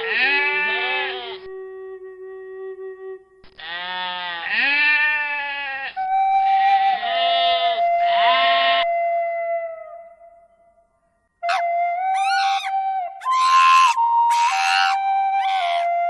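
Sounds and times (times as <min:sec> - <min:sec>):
goat or sheep bleating: 0:00.1 - 0:01.4, 0:03.6 - 0:06.0.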